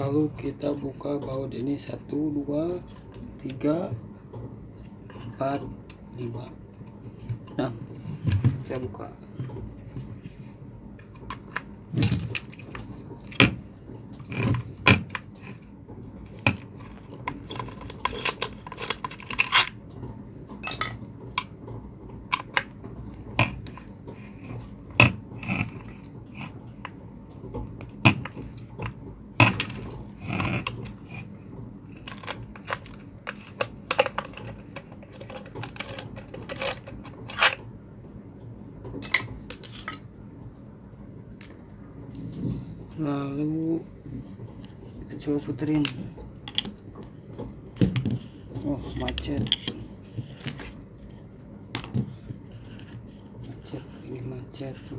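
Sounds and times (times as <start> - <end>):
metallic clinks and knocks of tools: 18.2 - 21.0, 39.0 - 40.0.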